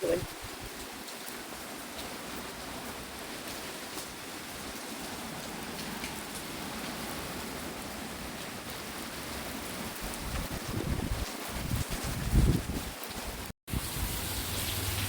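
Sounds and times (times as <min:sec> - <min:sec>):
heavy rain hissing: 0:09.4 - 0:15.0.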